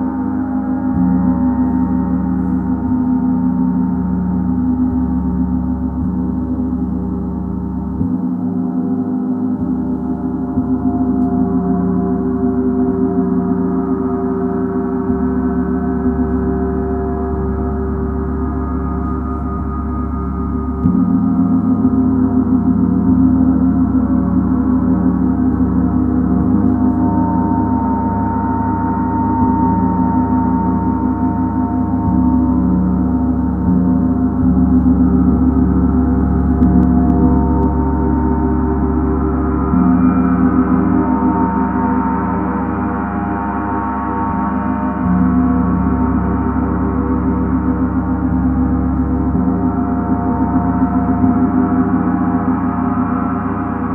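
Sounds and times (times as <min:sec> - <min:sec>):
gong ringing: 0:23.8 - 0:53.9.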